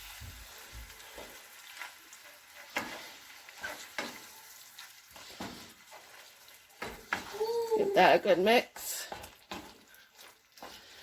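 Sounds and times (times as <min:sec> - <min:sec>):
faint sizzle: 0:00.0 - 0:11.0
spoon scraping a pan: 0:01.0 - 0:07.4, 0:08.8 - 0:11.0.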